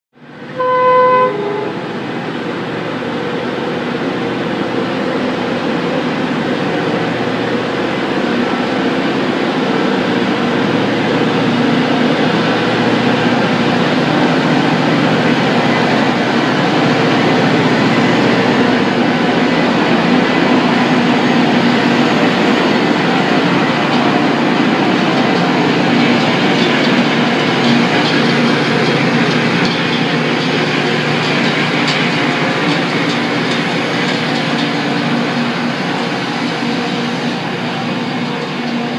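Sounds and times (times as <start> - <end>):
rail grinding train rushing noise: 0.2 - 38.9
train horn blast: 0.4 - 2.2.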